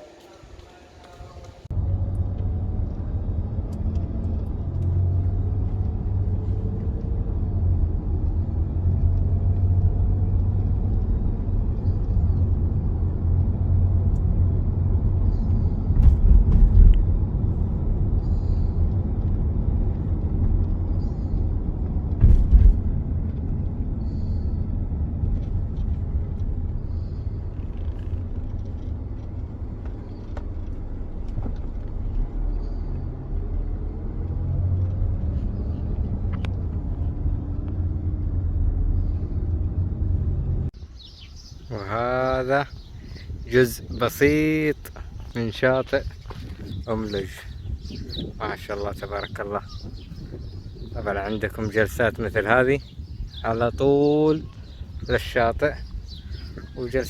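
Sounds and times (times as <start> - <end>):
car engine and road noise: 0.0 - 57.0
loud thumps: 15.9 - 17.3, 22.1 - 23.0.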